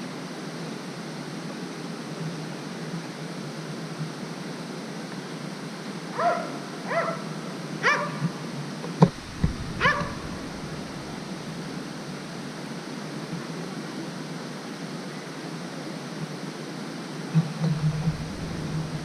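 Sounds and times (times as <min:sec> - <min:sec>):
steady hiss: 0:00.0 - 0:19.0
dog barking: 0:06.1 - 0:08.3, 0:09.7 - 0:11.1.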